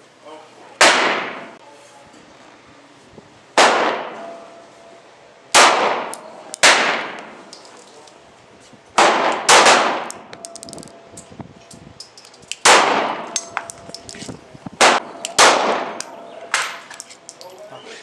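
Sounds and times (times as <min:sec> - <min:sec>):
pistol shots echoing: 0:05.5 - 0:07.3, 0:09.0 - 0:10.2, 0:12.6 - 0:13.6, 0:14.8 - 0:16.7.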